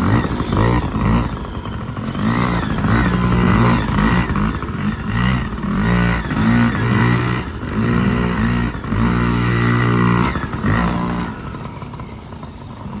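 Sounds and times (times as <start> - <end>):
minibike engine revving: 0.0 - 13.0.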